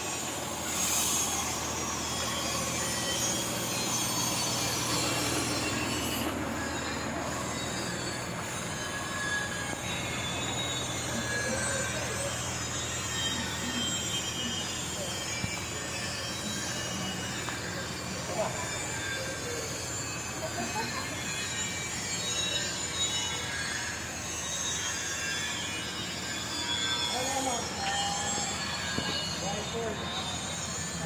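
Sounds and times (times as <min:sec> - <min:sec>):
diesel truck engine idling: 0:00.1 - 0:20.6.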